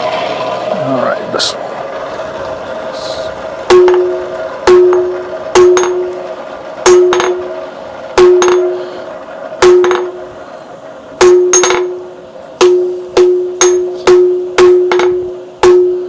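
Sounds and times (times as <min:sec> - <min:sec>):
anvil ringing tone: 0:03.7 - 0:06.2, 0:06.8 - 0:07.6, 0:08.2 - 0:08.9, 0:09.6 - 0:10.2, 0:11.2 - 0:16.0
hammer striking steel on anvil: 0:03.7 - 0:06.2, 0:06.8 - 0:07.6, 0:08.2 - 0:08.9, 0:09.6 - 0:10.2, 0:11.2 - 0:12.0, 0:12.6 - 0:16.0.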